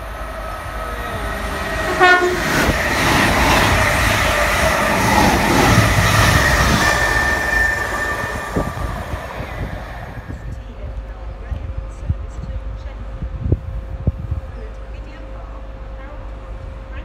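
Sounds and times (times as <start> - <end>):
train rushing past: 0.0 - 11.5
train horn blast: 0.6 - 10.6.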